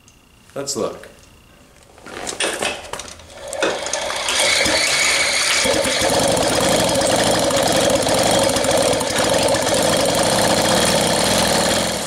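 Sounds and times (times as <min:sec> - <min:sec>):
moped engine spinning over: 0:02.0 - 0:12.0.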